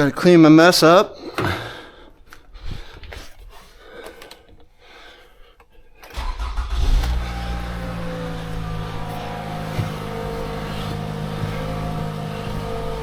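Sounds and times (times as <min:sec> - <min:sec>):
car engine starting and idling: 0:06.1 - 0:13.0.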